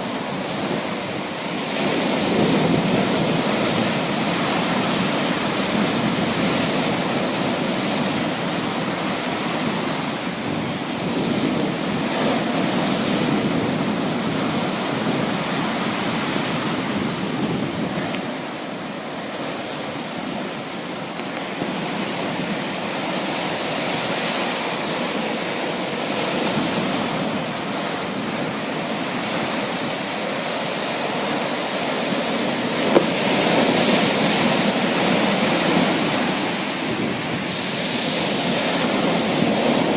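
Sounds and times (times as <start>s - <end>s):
sea waves washing on shore: 0.0s - 39.9s.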